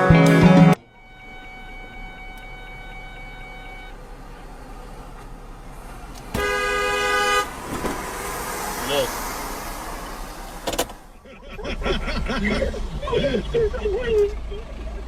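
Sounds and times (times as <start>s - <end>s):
music: 0.0s - 0.8s
road and cabin noise: 0.0s - 15.0s.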